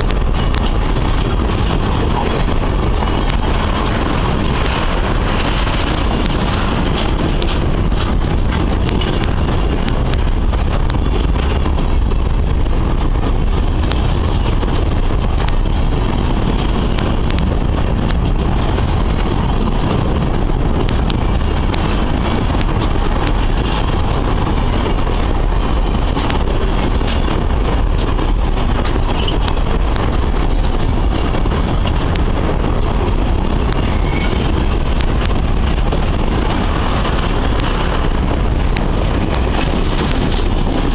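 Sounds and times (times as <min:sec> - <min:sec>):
freight train rumbling: 0:00.0 - 0:40.9
train wagons clicking and clanking: 0:00.0 - 0:40.9.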